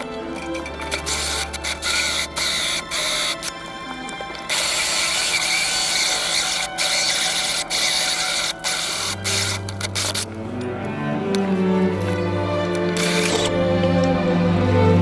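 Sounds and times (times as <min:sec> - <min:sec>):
power tool running: 0:00.9 - 0:03.6, 0:04.2 - 0:10.3, 0:12.9 - 0:13.5.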